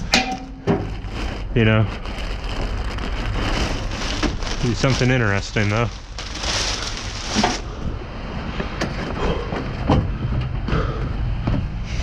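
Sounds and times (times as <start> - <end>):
trash shifting in a dumpster: 0.0 - 10.7
loud rustle: 0.8 - 7.9
wind rumble on microphone: 7.2 - 12.0.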